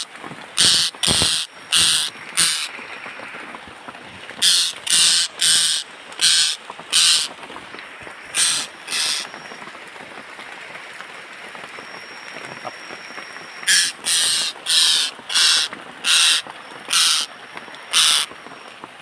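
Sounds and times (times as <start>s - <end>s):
rain hiss: 0.0s - 19.0s
bird harsh raspy calls: 0.6s - 3.4s, 4.4s - 7.3s, 8.3s - 9.4s, 13.6s - 18.3s.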